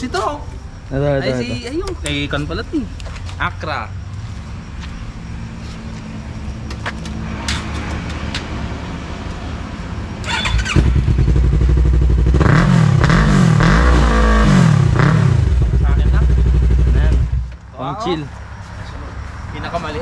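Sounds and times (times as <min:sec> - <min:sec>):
motorcycle engine revving: 0:10.2 - 0:17.5
motorcycle engine starting and idling: 0:10.2 - 0:17.5.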